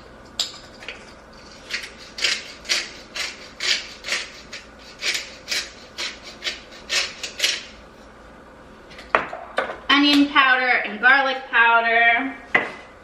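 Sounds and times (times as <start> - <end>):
pepper grinder grinding: 0.7 - 7.7.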